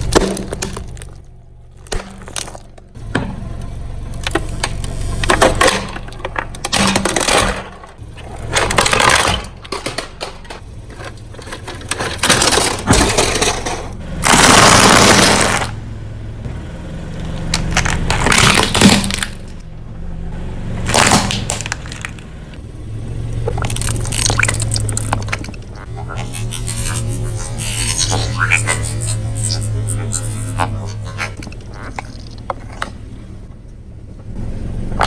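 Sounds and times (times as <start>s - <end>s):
objects crunching under car tyre: 0.0s - 15.8s, 17.0s - 19.7s, 20.6s - 35.0s
low steady hum: 0.0s - 35.0s
loud burst of noise: 14.2s - 15.8s.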